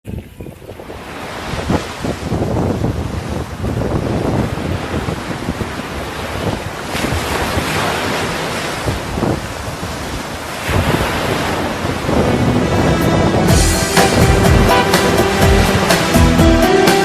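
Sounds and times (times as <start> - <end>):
wind buffeting microphone: 0.0 - 16.2.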